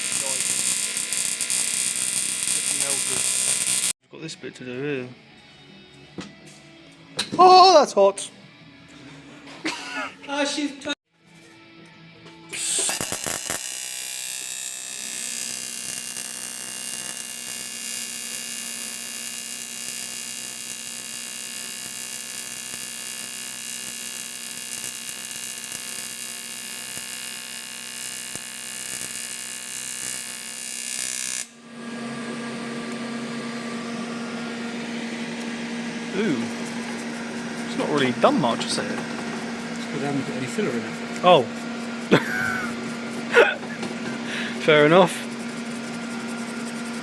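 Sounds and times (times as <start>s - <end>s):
welding arc buzzing: 0.0s - 4.0s, 12.5s - 32.6s, 33.2s - 47.0s
steady machine hum: 31.7s - 47.0s.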